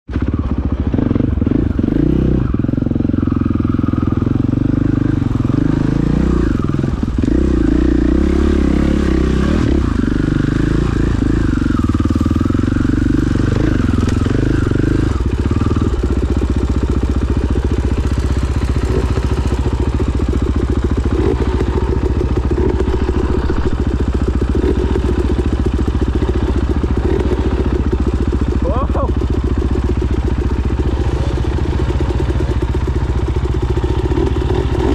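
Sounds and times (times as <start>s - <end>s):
dirt bike engine running: 0.1s - 34.9s.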